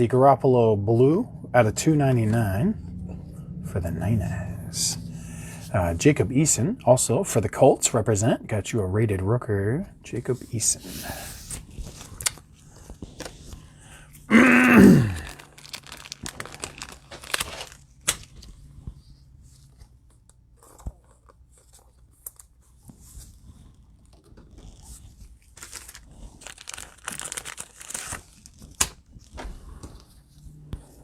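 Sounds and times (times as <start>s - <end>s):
wrappers tearing and crinkling: 14.3s - 18.5s, 24.6s - 29.3s
cards rustling: 15.1s - 19.1s, 24.5s - 29.0s.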